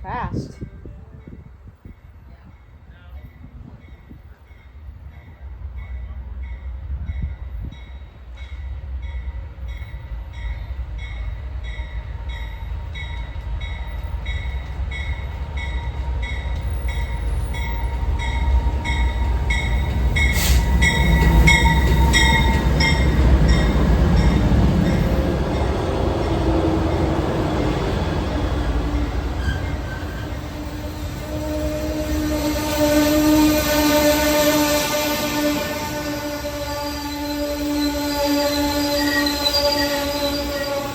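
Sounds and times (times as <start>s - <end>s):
train passing: 0.0s - 40.9s
railroad crossing bell ringing: 0.6s - 34.5s.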